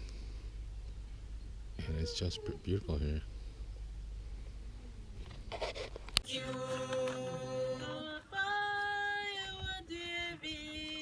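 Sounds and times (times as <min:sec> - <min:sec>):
group singing unaccompanied: 0:06.2 - 0:11.0.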